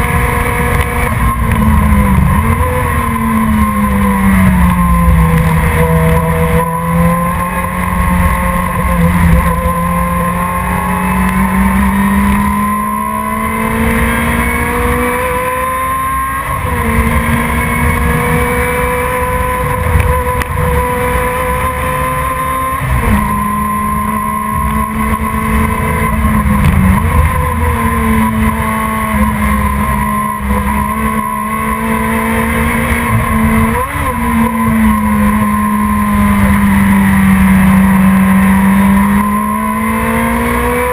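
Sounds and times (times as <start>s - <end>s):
race car engine running hard: 0.0s - 40.9s.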